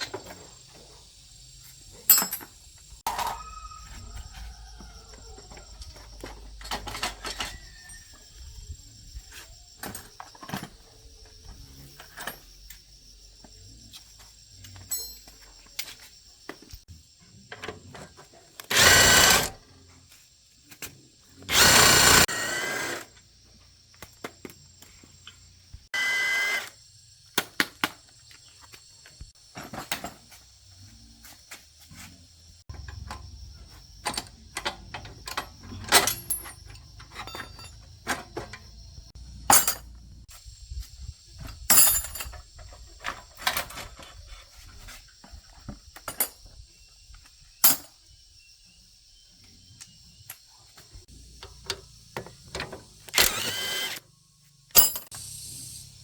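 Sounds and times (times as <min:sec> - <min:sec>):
power tool whining: 0:18.6 - 0:19.6, 0:21.5 - 0:23.1, 0:52.6 - 0:54.1.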